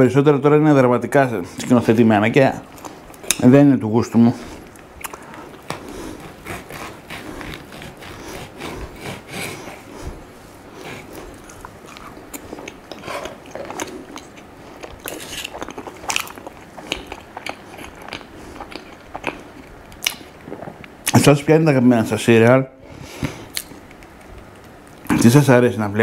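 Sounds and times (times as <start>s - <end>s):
person chewing food: 4.5s - 21.1s, 23.2s - 25.1s
mouth clicks and smacks: 4.7s - 5.7s, 11.5s - 21.2s, 23.2s - 25.1s.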